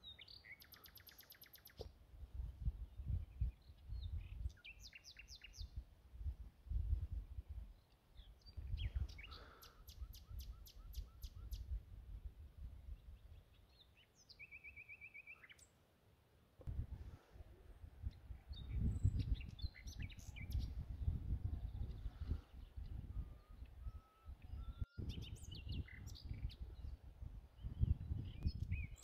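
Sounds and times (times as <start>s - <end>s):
birds chirping: 7.7s - 11.7s, 18.0s - 29.0s.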